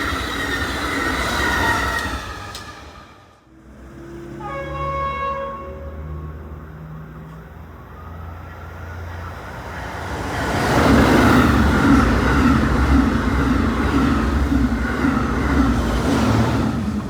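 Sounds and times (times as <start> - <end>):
high-speed train passing: 0.0 - 17.0.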